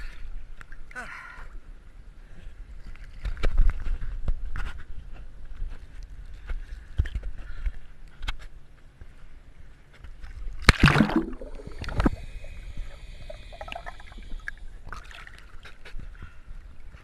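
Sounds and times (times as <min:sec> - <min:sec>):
water splashing and sloshing: 0:09.9 - 0:17.0.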